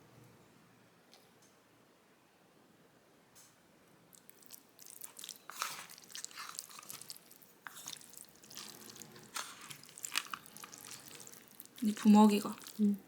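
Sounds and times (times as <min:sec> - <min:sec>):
chewing crispy food: 0:04.1 - 0:13.0.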